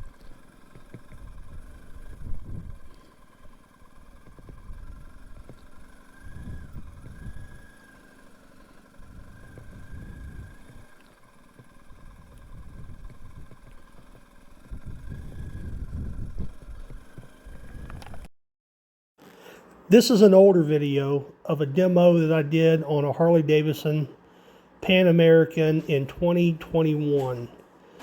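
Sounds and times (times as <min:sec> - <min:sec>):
motorcycle engine running: 0:00.0 - 0:18.3
wind rumble on microphone: 0:01.2 - 0:02.9, 0:06.2 - 0:07.6, 0:12.2 - 0:13.7, 0:14.7 - 0:18.3.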